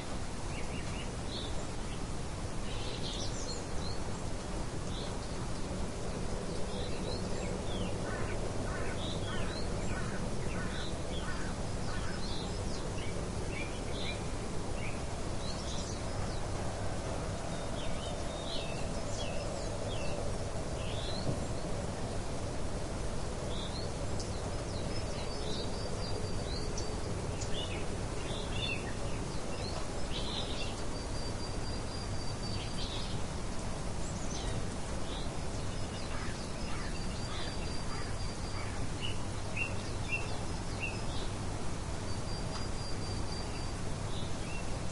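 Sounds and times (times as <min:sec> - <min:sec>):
steady background hiss: 0:00.0 - 0:44.9
birds chirping: 0:23.5 - 0:41.4.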